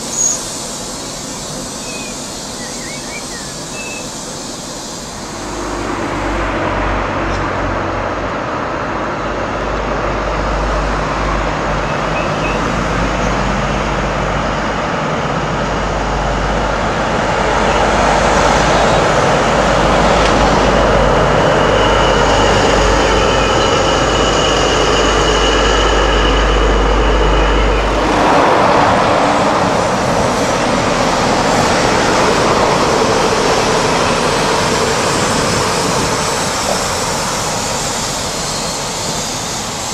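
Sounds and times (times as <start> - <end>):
high whine: 0.0 - 39.9
low rumble of train: 0.0 - 39.9
train passing on rails: 0.0 - 39.9.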